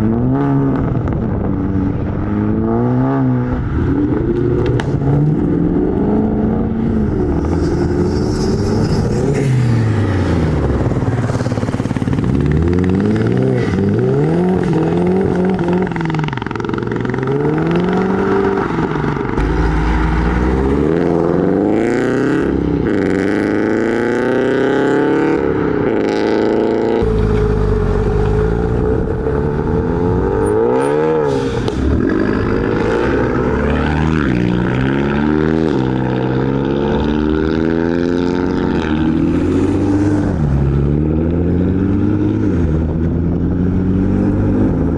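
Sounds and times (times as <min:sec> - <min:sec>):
car engines revving: 0:00.0 - 0:44.9
deep low rumble: 0:03.4 - 0:23.3, 0:27.0 - 0:30.7.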